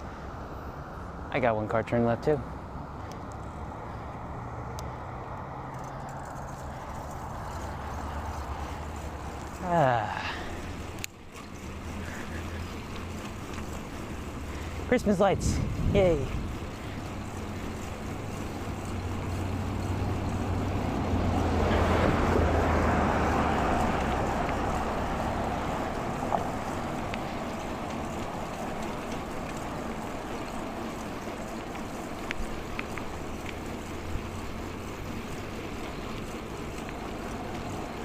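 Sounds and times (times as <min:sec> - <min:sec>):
bicycle tyre and road hum: 0:00.0 - 0:38.0
small clicks: 0:10.7 - 0:13.8, 0:26.3 - 0:33.6
wind on microphone: 0:15.4 - 0:16.6.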